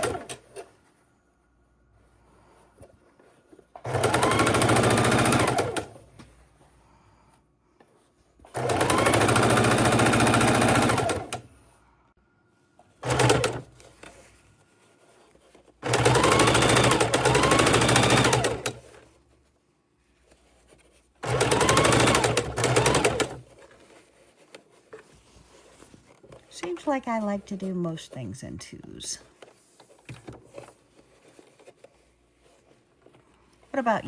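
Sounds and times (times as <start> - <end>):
sewing machine stitching: 0.0 - 0.6, 3.8 - 6.0, 8.4 - 11.5, 13.0 - 14.0, 15.8 - 19.0, 21.2 - 23.6.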